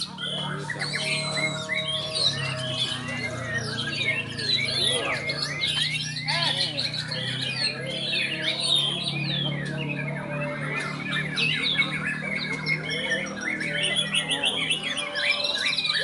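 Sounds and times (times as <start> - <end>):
caged birds singing: 0.0 - 16.0.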